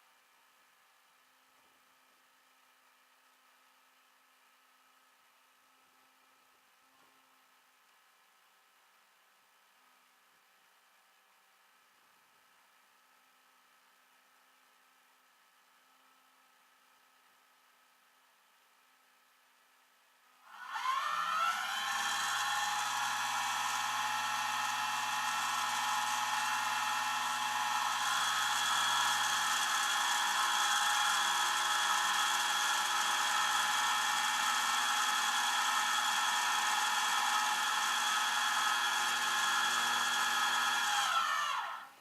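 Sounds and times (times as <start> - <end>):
power tool motor whining: 20.5 - 41.9.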